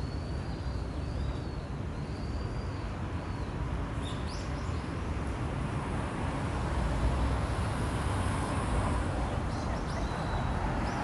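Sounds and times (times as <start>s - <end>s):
city traffic rumble: 0.0s - 11.0s
small birds calling: 9.3s - 11.0s.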